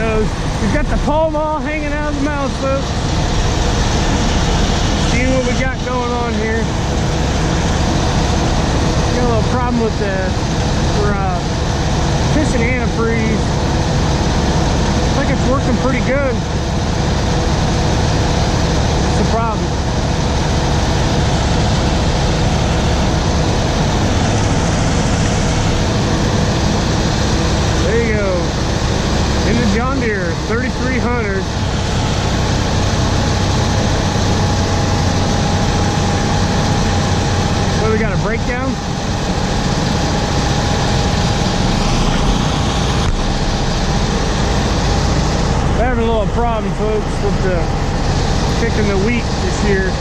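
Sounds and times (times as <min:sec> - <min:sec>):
combine harvester running: 0:00.0 - 0:50.0
heavy machinery engine rumble: 0:00.0 - 0:50.0
thin steady whine: 0:00.0 - 0:50.0.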